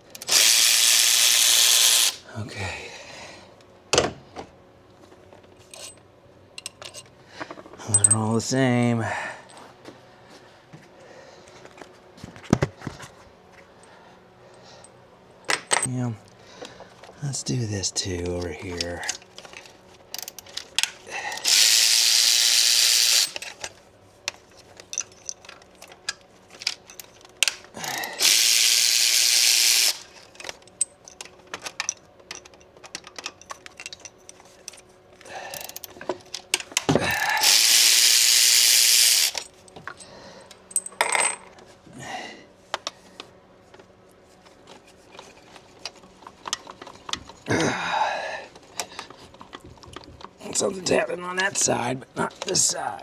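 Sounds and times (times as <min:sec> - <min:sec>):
metal tools clinking: 0:05.6 - 0:06.0, 0:06.6 - 0:08.5, 0:23.0 - 0:28.0, 0:30.1 - 0:37.8, 0:39.2 - 0:41.6
compressed air hissing: 0:37.1 - 0:39.4.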